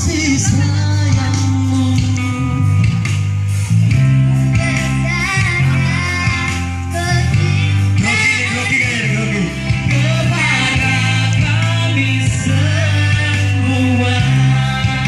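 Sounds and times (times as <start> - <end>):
instrumental accompaniment: 0.0 - 15.0
girl singing: 4.5 - 9.0.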